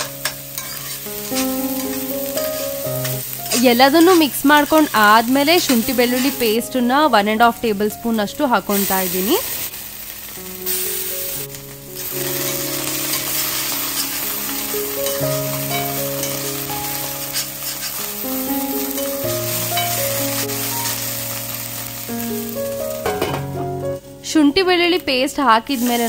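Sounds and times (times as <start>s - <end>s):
food sizzling in oil: 0.0s - 26.0s
slow background music: 0.0s - 26.0s.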